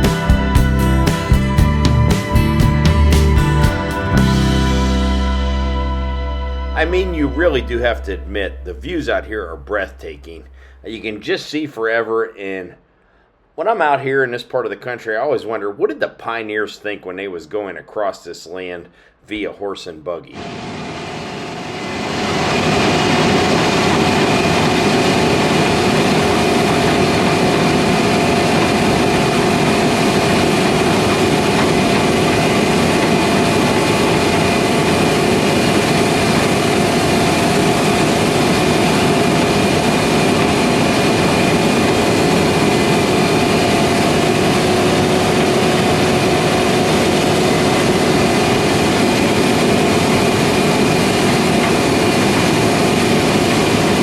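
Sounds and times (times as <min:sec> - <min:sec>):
harvest machinery engine drone: 0:00.0 - 0:11.2, 0:20.4 - 0:54.0.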